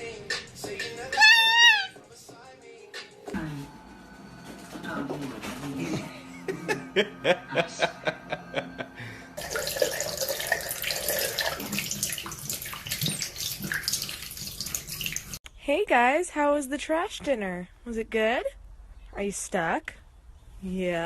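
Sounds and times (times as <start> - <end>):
running water: 9.4 - 15.4.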